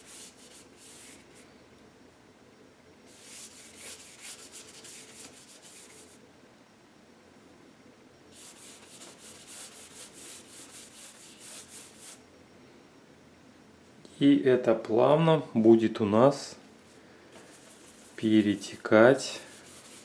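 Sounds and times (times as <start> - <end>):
paintbrush scrubbing paint: 0.0 - 1.2, 3.1 - 6.2, 8.4 - 12.2, 17.5 - 20.0.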